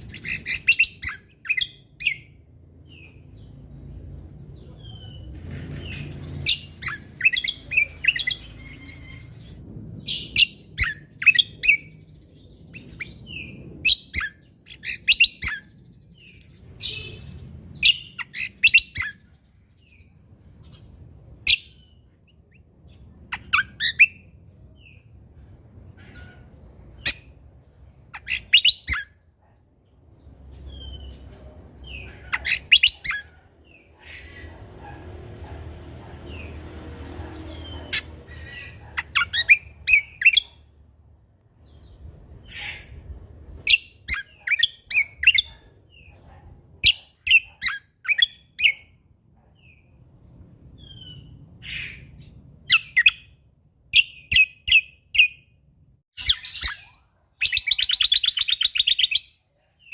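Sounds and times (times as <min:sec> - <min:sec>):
songbird chirping: 0:00.0 - 0:35.4
faint low rumble: 0:19.2 - 0:28.2.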